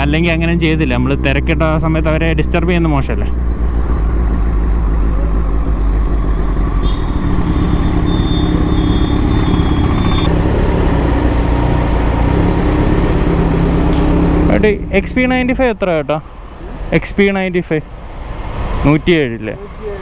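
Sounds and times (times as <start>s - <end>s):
motorcycle engine running: 0.0s - 15.9s
steady high tone: 4.4s - 10.4s.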